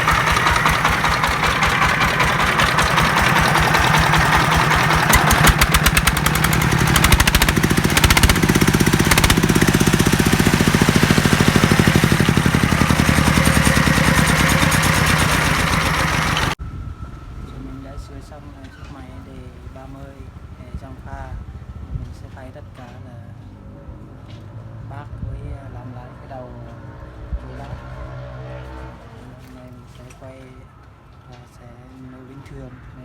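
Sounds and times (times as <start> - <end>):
diesel engine running: 0.0 - 16.6.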